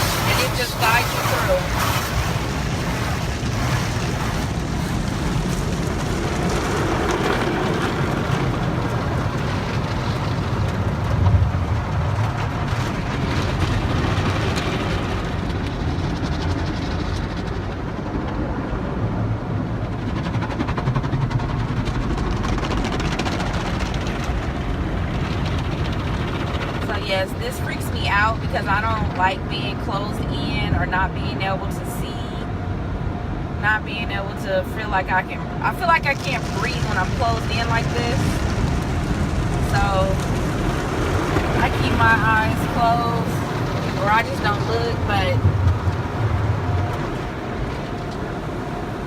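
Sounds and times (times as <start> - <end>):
water hissing over car: 0.0 - 10.3
car wash machinery rumble: 0.0 - 49.0.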